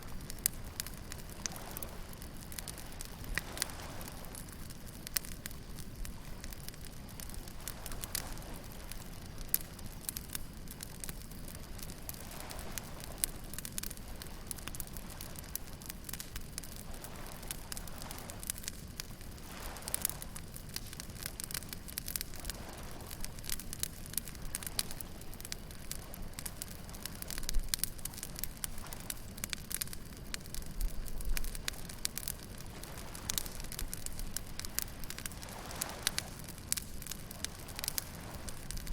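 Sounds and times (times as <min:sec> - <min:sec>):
bonfire crackling and popping: 0:00.0 - 0:38.9
waves breaking: 0:16.7 - 0:29.3, 0:30.5 - 0:38.9
surf rumbling: 0:19.2 - 0:38.9.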